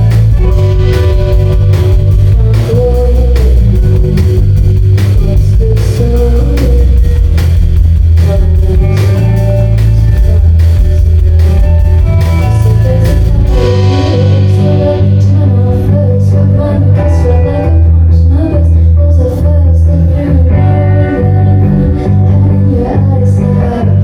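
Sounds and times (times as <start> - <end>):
drum kit: 0.0 - 18.1
bass guitar: 0.0 - 24.0
electric guitar: 0.0 - 24.0.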